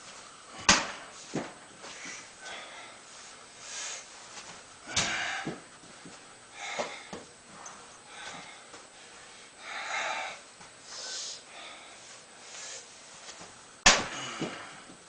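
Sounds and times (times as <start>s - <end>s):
person breathing loudly: 1.9s - 4.1s, 4.8s - 5.7s, 6.5s - 7.3s, 8.0s - 13.0s.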